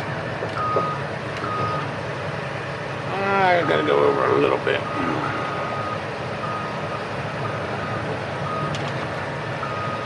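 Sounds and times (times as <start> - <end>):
diesel engine running: 0.0 - 10.0
truck backup alarm beeping: 0.5 - 1.9, 3.4 - 9.0, 9.6 - 10.0.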